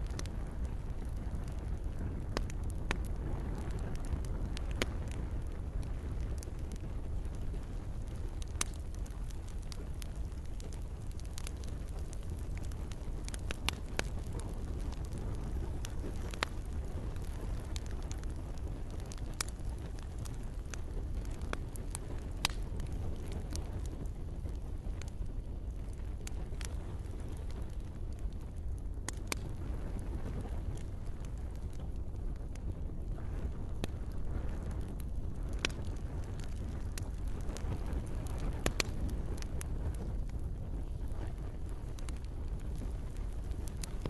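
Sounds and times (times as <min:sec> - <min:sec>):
campfire crackling: 0:00.0 - 0:44.0.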